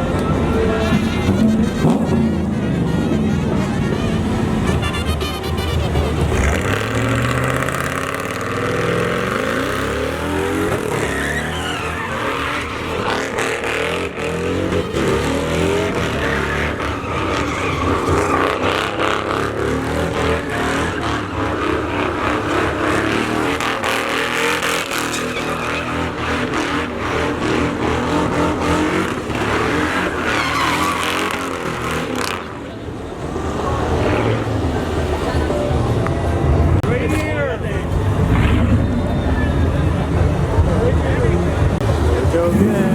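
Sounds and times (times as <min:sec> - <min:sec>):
truck engine revving hard: 0:00.0 - 0:42.9
tyres spinning on pavement: 0:05.9 - 0:36.7.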